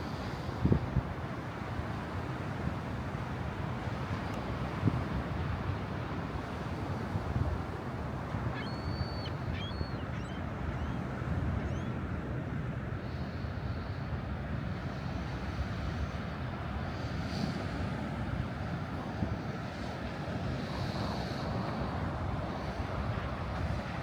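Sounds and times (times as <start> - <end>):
beach surf: 0.0 - 24.0
whistled bird calls: 8.6 - 11.0.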